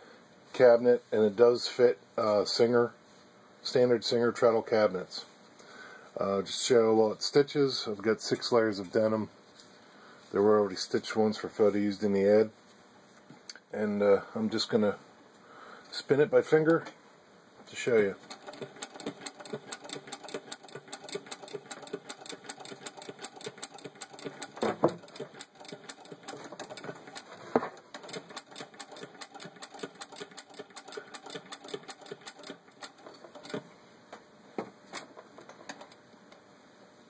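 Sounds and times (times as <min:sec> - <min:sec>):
sewing machine ticking: 0:18.2 - 0:27.3, 0:27.9 - 0:33.6.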